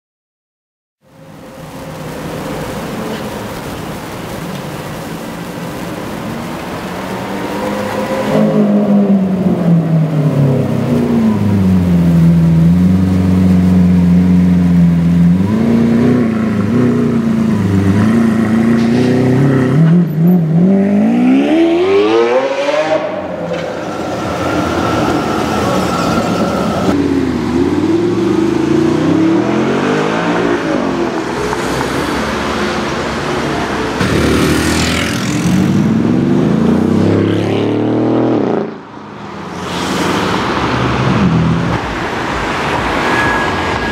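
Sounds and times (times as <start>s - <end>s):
car engines accelerating past: 6.7s - 43.9s.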